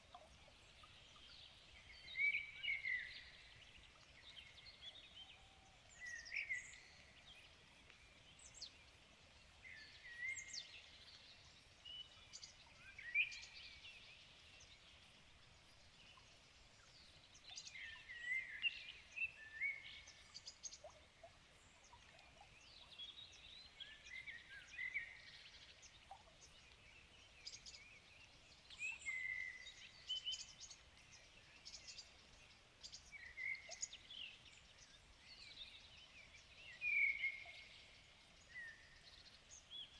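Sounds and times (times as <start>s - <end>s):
low background hiss: 0.0s - 39.9s.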